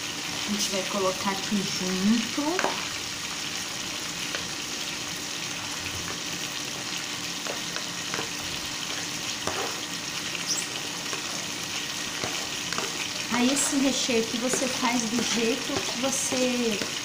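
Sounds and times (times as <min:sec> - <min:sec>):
chicken sizzling on grill pan: 0:00.0 - 0:17.0
spoon scraping a plate: 0:09.4 - 0:11.5.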